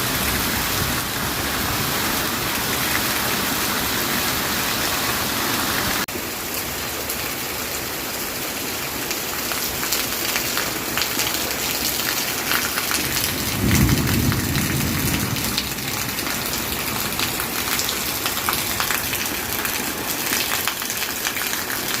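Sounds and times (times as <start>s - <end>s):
rain pattering on surfaces: 0.0s - 22.0s
thunder rumble: 12.9s - 19.1s.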